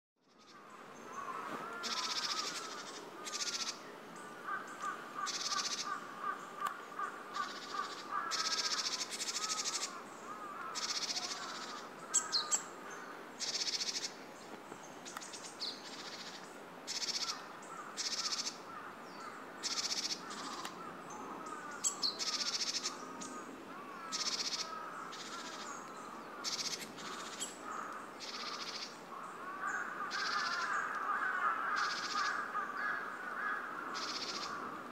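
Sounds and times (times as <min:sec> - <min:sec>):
high-pitched bird calls: 0:00.4 - 0:03.8.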